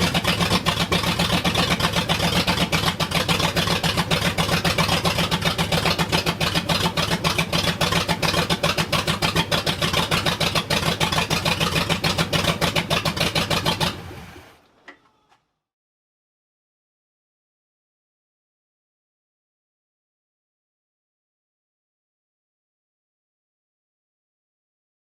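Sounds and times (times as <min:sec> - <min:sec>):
engine running with pulsing exhaust: 0:00.0 - 0:14.7.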